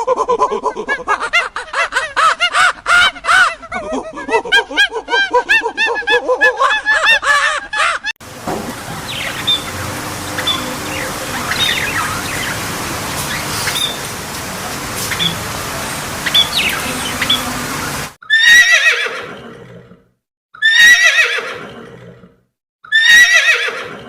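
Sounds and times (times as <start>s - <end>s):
outdoor background hiss: 8.2s - 18.2s
small birds chirping: 8.6s - 18.2s
bird giving harsh calls: 8.8s - 18.5s.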